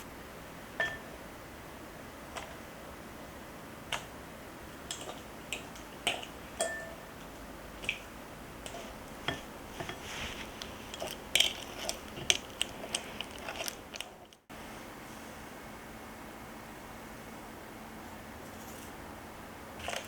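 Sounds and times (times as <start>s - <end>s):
dishes and utensils clinking: 6.6s - 7.0s.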